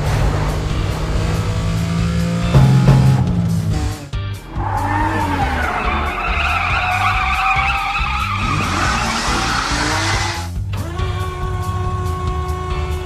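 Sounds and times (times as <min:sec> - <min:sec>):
background music with steady beat: 0:00.6 - 0:13.0
wavering screech sound effect: 0:04.6 - 0:10.2.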